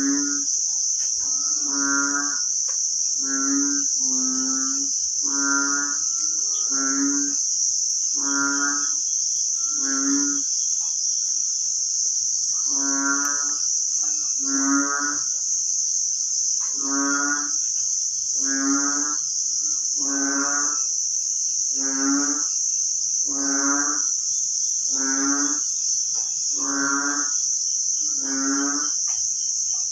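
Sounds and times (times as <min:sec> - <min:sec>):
frogs croaking: 0:00.0 - 0:29.9
high-pitched insect drone: 0:00.0 - 0:29.9.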